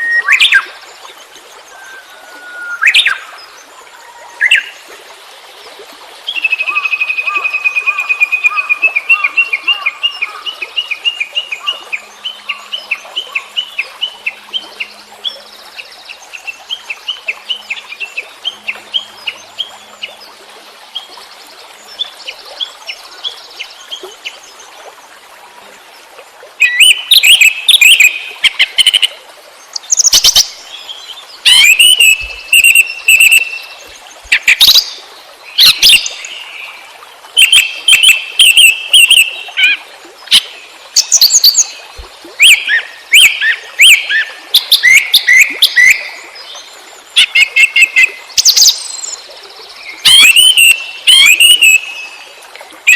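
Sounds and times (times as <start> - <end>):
songbird singing: 26.6 - 29.1, 29.7 - 36.8, 37.4 - 52.3.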